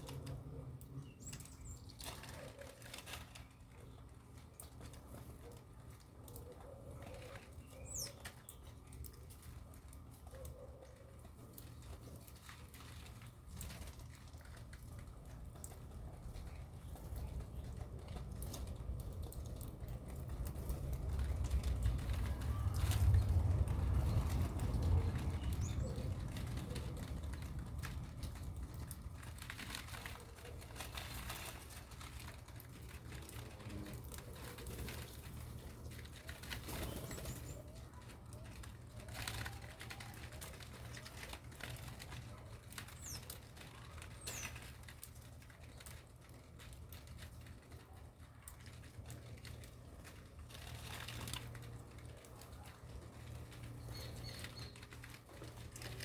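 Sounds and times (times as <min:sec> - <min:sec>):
birds clicking and scratching: 0:00.0 - 0:56.0
wing flaps: 0:16.3 - 0:45.9.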